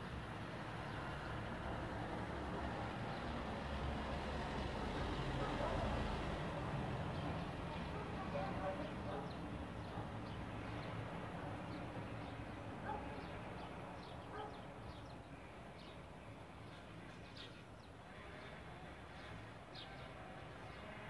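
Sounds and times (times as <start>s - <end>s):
birds chirping faintly: 11.7s - 18.6s.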